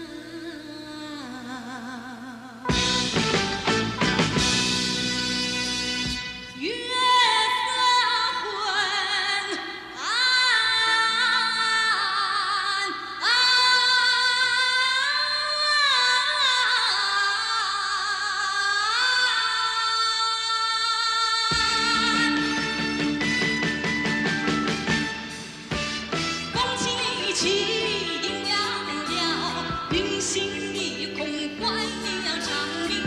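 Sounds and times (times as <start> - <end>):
woman singing a slow ballad: 0.0 - 2.7, 6.6 - 22.8, 26.6 - 33.0
soft instrumental accompaniment: 2.7 - 7.2, 21.5 - 33.0.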